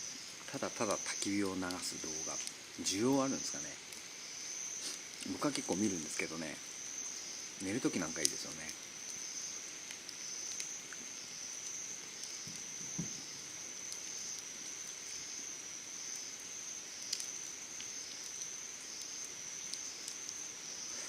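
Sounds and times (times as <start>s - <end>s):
campfire crackling: 0.0s - 21.0s
insects trilling: 0.0s - 21.0s
soft knock: 12.5s - 13.2s.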